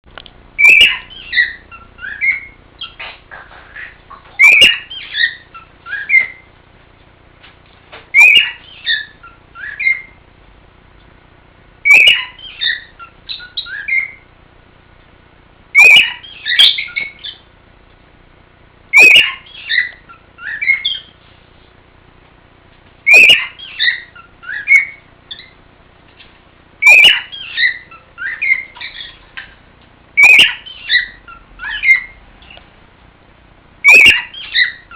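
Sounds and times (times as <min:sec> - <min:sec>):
cockatiel whistling song: 0:00.6 - 0:03.1, 0:03.8 - 0:06.5, 0:08.1 - 0:10.2, 0:11.8 - 0:14.2, 0:15.8 - 0:17.4, 0:18.9 - 0:21.2, 0:23.0 - 0:25.6, 0:26.8 - 0:29.2, 0:30.2 - 0:32.2, 0:33.8 - 0:34.9.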